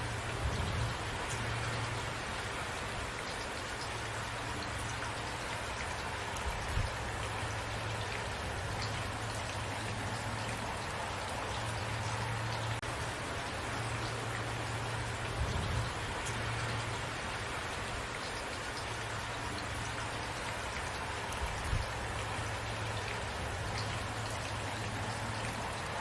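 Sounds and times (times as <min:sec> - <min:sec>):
rain pattering: 0:00.0 - 0:26.0.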